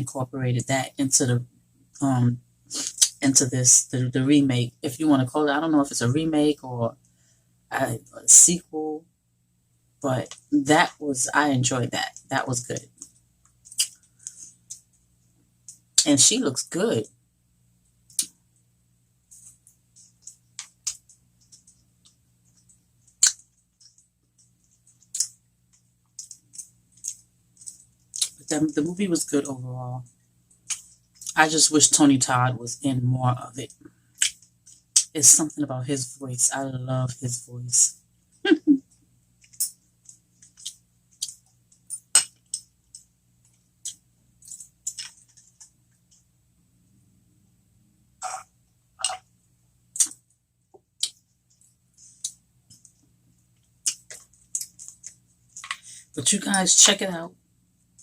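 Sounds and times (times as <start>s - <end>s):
chewing and mouth sounds: 53.6s - 55.8s.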